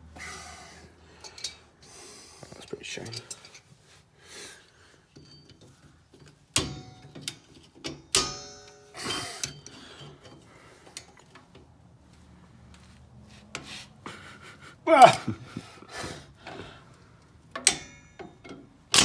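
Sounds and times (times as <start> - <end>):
metal tools clanking: 2.7 - 3.7, 5.2 - 11.1, 17.6 - 19.0.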